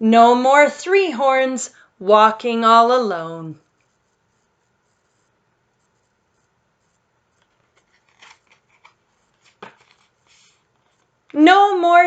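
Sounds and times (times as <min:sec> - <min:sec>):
book page turning: 0:05.8 - 0:11.2.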